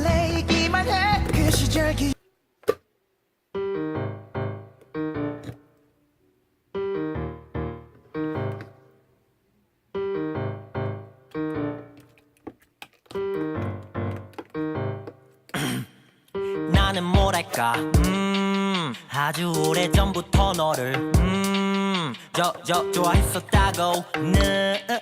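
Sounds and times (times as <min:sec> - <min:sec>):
piano chords: 0:03.6 - 0:09.1, 0:09.9 - 0:12.3, 0:13.1 - 0:15.5, 0:16.4 - 0:19.0, 0:19.6 - 0:25.0.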